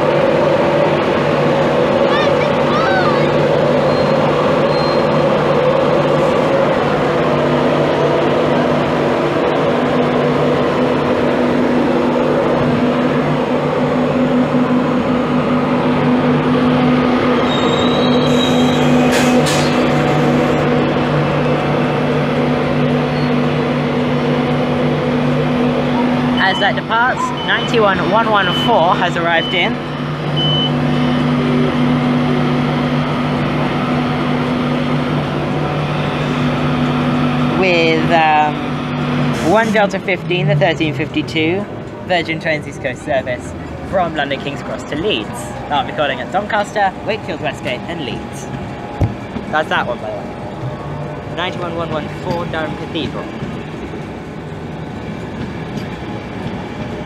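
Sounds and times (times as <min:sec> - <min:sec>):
electric train moving slowly: 0:00.0 - 0:57.0
high-pitched wheel squeals: 0:02.0 - 0:05.6, 0:17.3 - 0:20.6, 0:23.0 - 0:23.5, 0:25.9 - 0:31.6.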